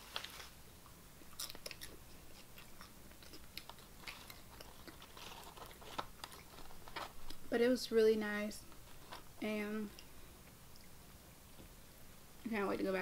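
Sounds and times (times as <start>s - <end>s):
person chewing crunchy chips: 1.2s - 7.5s.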